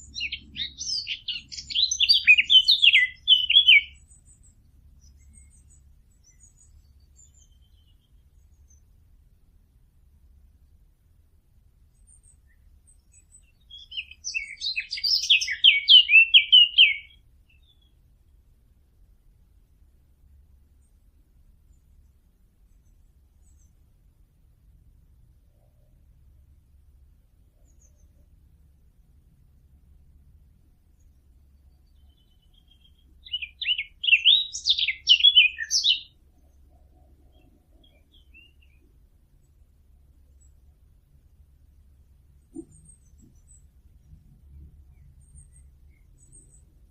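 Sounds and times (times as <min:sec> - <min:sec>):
songbird warbling: 0:00.0 - 0:04.3, 0:13.4 - 0:17.9, 0:32.0 - 0:36.2
bird song: 0:00.0 - 0:46.9.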